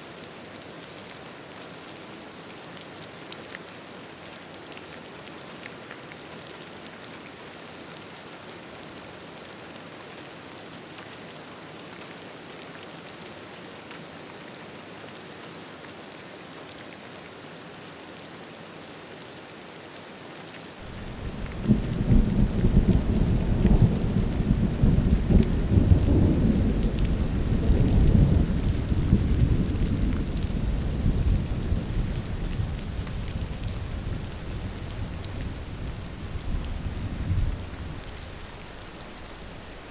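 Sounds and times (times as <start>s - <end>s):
rain falling: 20.7s - 39.9s
thunder rumbling: 20.8s - 39.9s.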